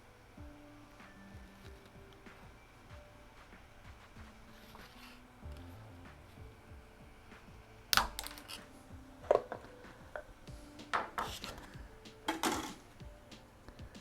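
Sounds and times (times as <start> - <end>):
plastic pieces clicking and snapping: 8.0 - 8.7.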